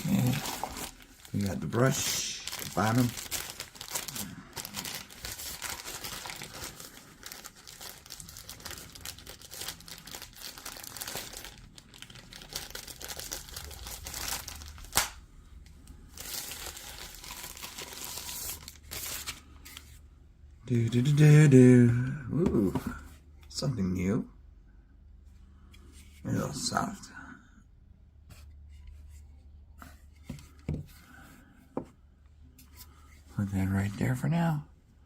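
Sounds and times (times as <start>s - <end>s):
packaging crinkling and tearing: 0.0s - 15.2s, 15.8s - 19.8s.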